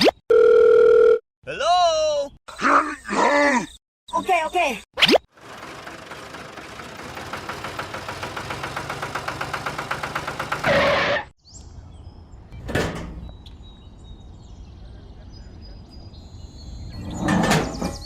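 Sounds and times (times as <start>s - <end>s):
rhythmic motor-driven machine clatter: 5.4s - 10.7s.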